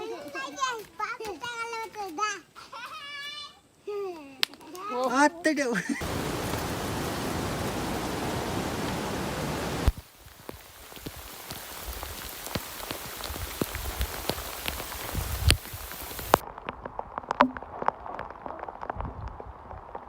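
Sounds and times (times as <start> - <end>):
heavy rain hiss: 6.0 - 16.4
raindrops ticking and dripping: 6.0 - 20.0.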